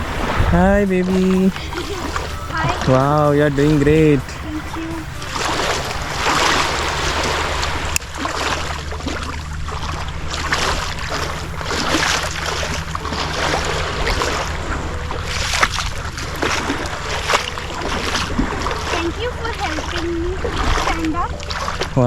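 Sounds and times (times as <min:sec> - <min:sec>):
sea water splashing and lapping: 0:00.0 - 0:22.0
wind rumbling on microphone: 0:00.0 - 0:22.0.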